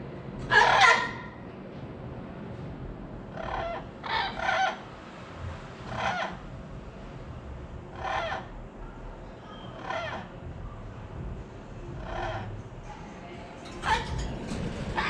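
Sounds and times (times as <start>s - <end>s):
bird squawking harshly: 0.5s - 1.3s, 9.5s - 10.3s.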